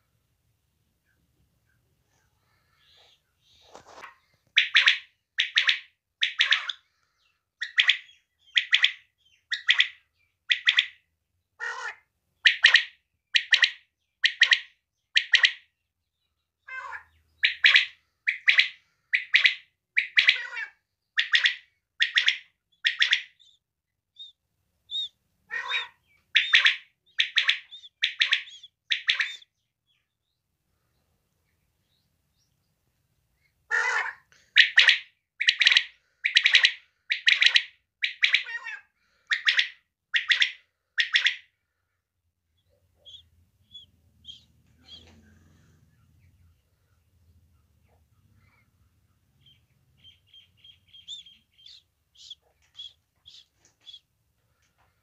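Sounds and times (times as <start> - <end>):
quail calling: 2.8 - 7.0, 7.6 - 11.0, 11.6 - 15.7, 16.6 - 23.6, 24.2 - 29.6, 33.7 - 41.6, 42.6 - 45.7, 47.6 - 54.1.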